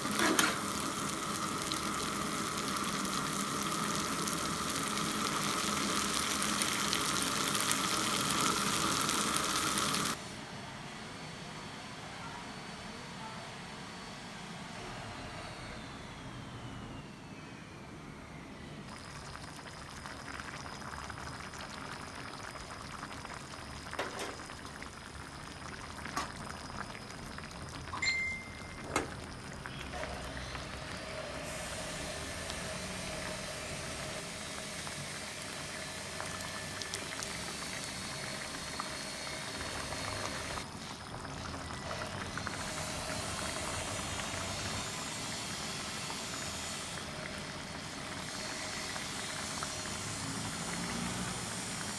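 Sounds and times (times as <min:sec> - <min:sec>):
fish hissing in a pan: 0:29.4 - 0:41.0, 0:42.2 - 0:51.9.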